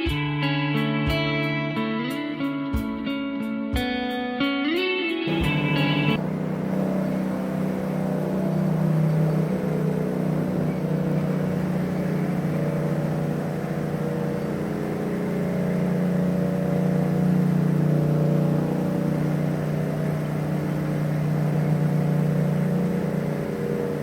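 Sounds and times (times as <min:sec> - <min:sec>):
motorcycle engine running: 0:05.3 - 0:24.0.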